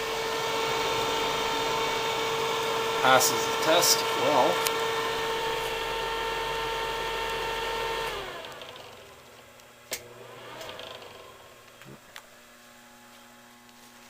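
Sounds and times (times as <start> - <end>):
exhaust fan humming: 0.0 - 14.0.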